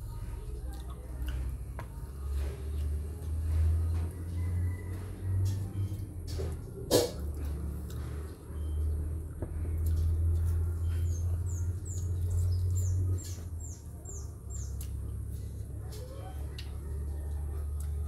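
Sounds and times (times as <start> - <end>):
small bird chirping: 9.8 - 15.1.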